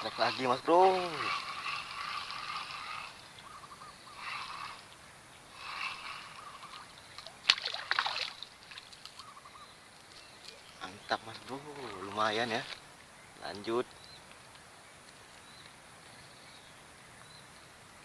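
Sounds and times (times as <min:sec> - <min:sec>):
water splashing and sloshing: 0:06.6 - 0:09.4.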